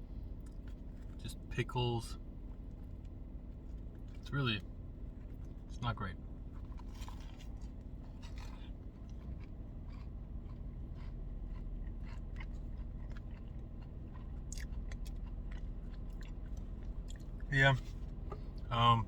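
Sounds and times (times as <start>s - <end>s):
person chewing food: 6.4s - 18.7s.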